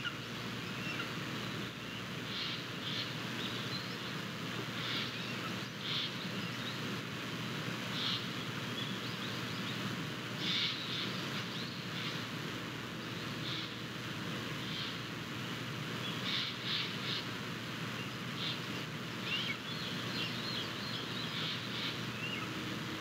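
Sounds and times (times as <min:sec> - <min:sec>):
high-pitched bird calls: 0:19.3 - 0:22.6.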